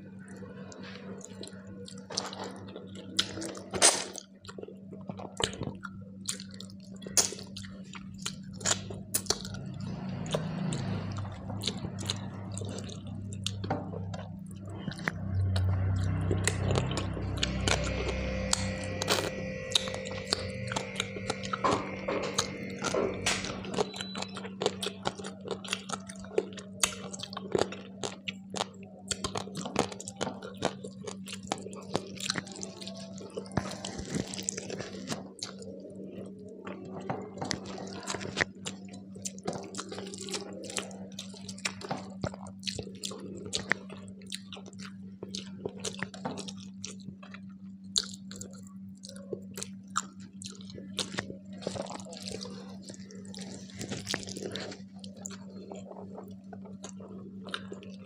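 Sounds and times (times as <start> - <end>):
steady low hum: 0.0 - 58.0
wet chewing mouth sounds: 0.7 - 58.0.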